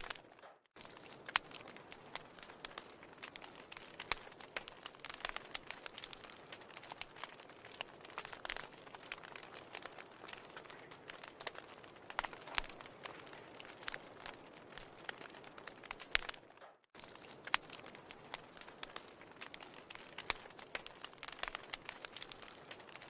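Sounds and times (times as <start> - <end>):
fire crackling and popping: 0.0 - 23.0
soft fire hiss: 17.0 - 23.0.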